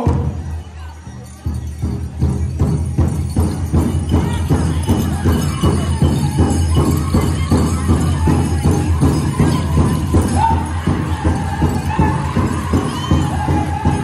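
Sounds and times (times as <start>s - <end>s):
large bass drum beating: 0.0s - 0.6s, 1.4s - 14.0s
group singing: 10.4s - 14.0s.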